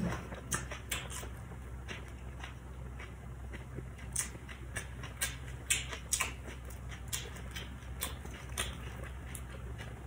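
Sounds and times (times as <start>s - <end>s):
crunchy chewing: 0.0s - 10.0s
wet mouth clicks: 3.6s - 9.5s.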